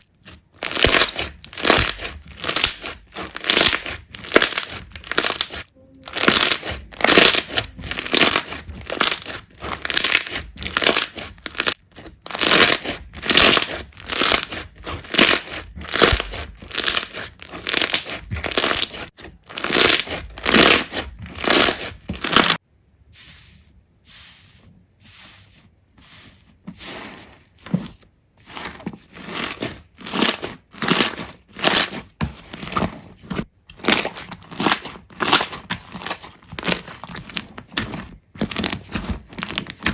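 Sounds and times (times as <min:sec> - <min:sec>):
slime squeezed by hand crackling: 0:00.6 - 0:22.6.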